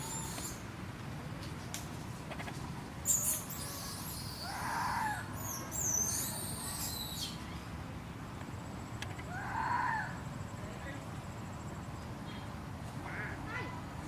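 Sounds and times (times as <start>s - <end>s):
high-pitched animal squeaks: 0.0s - 0.6s, 3.1s - 7.3s
lower rising and falling call: 0.0s - 0.7s.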